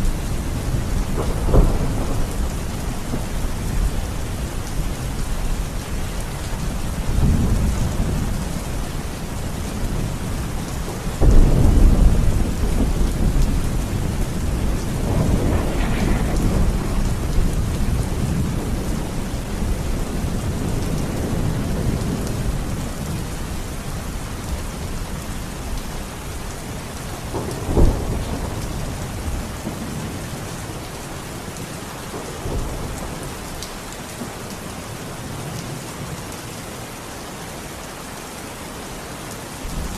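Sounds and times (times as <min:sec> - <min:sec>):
steady rain: 0:00.0 - 0:39.9
rolling thunder: 0:00.1 - 0:05.2, 0:11.1 - 0:23.3, 0:27.2 - 0:30.4
sharp thunderclap: 0:01.0 - 0:03.3, 0:11.2 - 0:19.7.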